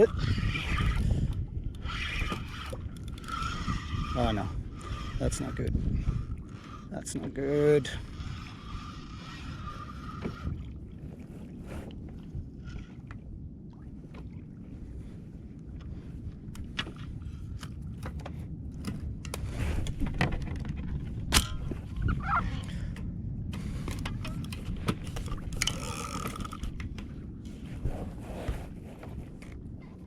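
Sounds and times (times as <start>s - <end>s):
fishing gear clicks and rattles: 0.0s - 5.5s, 16.4s - 22.1s, 22.7s - 27.3s
wind and water rumble: 0.0s - 30.0s.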